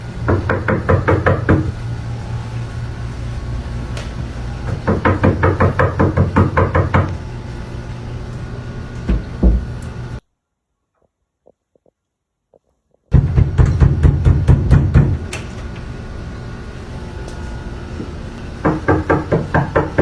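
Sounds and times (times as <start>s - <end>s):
steady low hum: 0.0s - 10.3s, 11.4s - 20.0s
rapid knocking: 4.7s - 7.1s, 18.6s - 20.0s.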